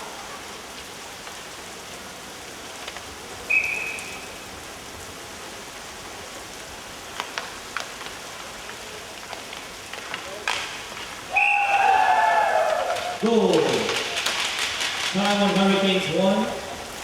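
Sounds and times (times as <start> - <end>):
arena noise hiss: 0.0 - 17.0
referee's whistle: 3.5 - 4.2, 11.3 - 11.9.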